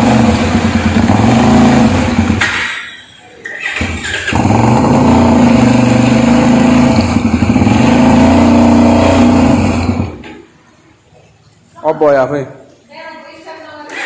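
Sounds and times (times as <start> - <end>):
motorcycle engine revving: 0.0 - 2.7, 3.6 - 10.3.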